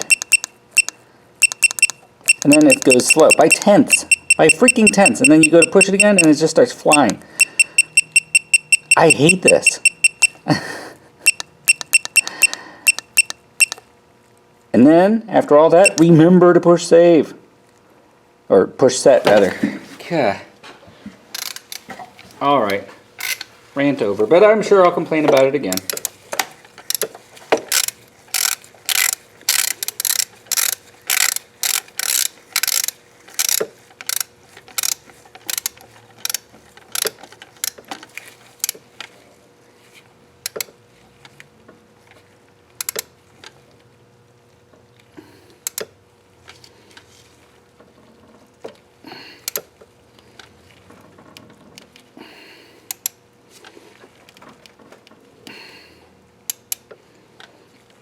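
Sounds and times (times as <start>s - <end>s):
torque wrench ratchet clicking: 0.0s - 6.3s, 6.9s - 10.4s, 11.3s - 13.8s, 15.8s - 16.0s, 21.4s - 21.8s, 27.7s - 37.8s, 42.8s - 43.1s.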